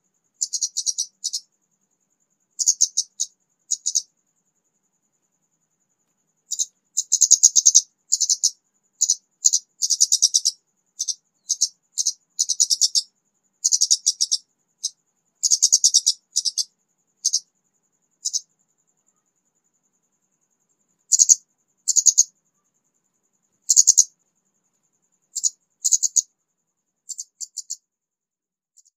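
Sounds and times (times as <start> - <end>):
bird singing trilled phrases: 0.4 - 1.5, 2.6 - 4.1, 6.5 - 17.4.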